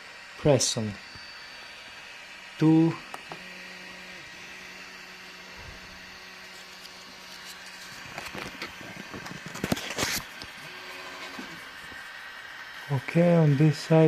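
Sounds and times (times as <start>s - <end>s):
printer faint hum: 0.2s - 14.0s
clicks and paper rustling: 7.3s - 10.5s.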